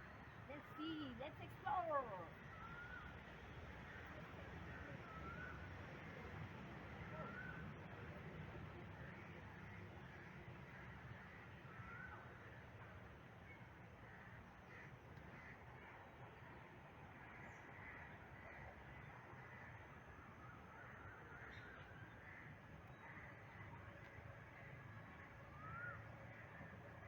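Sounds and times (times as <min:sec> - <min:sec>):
faint bird calls: 0:13.4 - 0:27.0.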